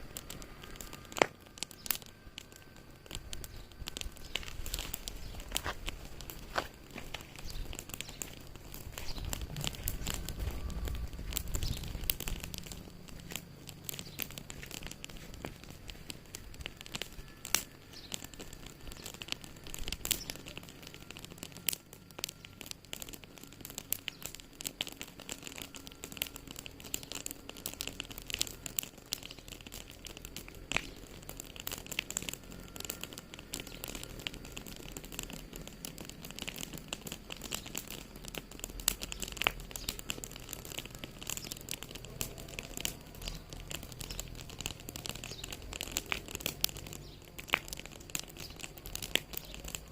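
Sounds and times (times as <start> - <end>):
wood fire crackling: 0.0 - 49.9.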